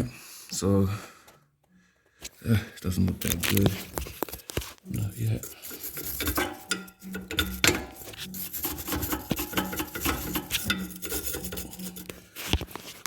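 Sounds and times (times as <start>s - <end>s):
brush scrubbing rusty metal: 4.9s - 13.0s.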